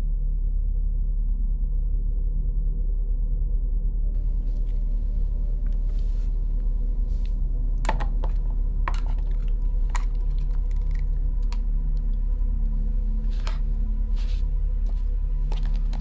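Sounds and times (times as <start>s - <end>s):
low steady drone: 0.0s - 16.0s
utensil tapping plastic and tin: 7.8s - 11.6s.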